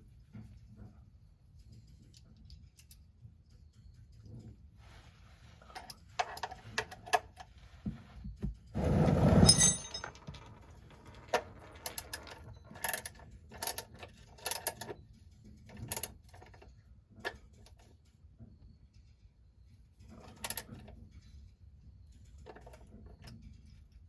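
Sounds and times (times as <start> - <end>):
scraping rush: 8.8 - 10.1
metal tools clinking: 9.2 - 14.9.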